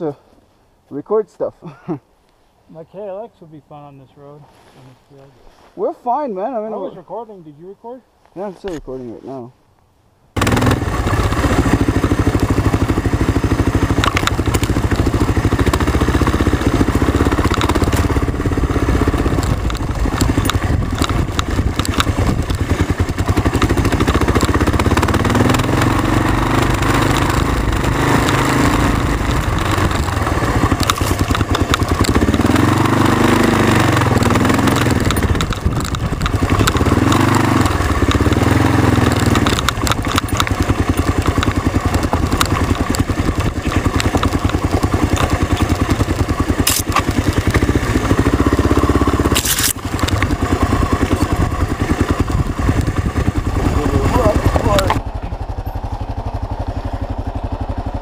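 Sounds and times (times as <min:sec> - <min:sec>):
motorcycle engine revving: 0:10.4 - 0:58.0
knocks and rattles: 0:19.0 - 0:33.0, 0:33.9 - 0:48.4.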